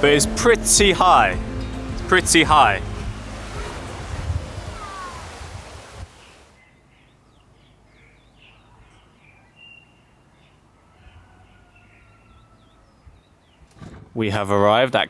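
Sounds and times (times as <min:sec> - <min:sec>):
loud steady rushing noise: 0:00.0 - 0:06.2
faint birds chirping: 0:00.0 - 0:13.8.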